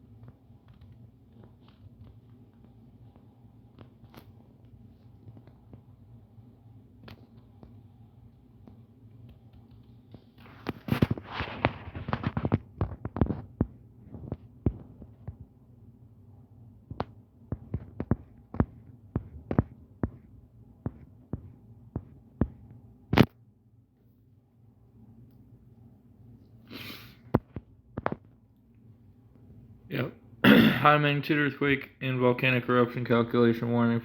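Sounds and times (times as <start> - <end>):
low steady hum: 0.0 - 34.0
sharp clicks and taps: 16.9 - 20.3.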